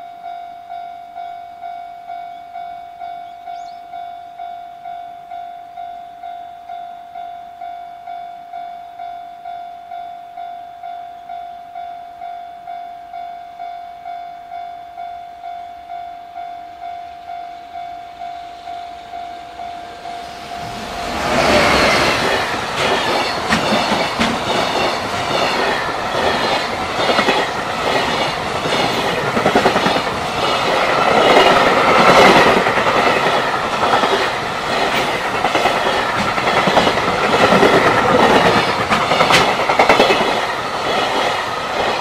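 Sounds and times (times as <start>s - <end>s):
train wheels clattering over rails: 20.6s - 42.0s.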